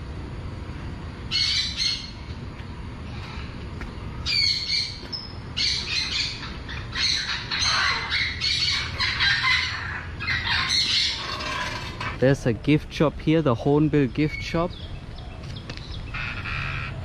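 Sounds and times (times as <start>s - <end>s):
bird squawking harshly: 5.6s - 12.2s, 16.1s - 17.0s.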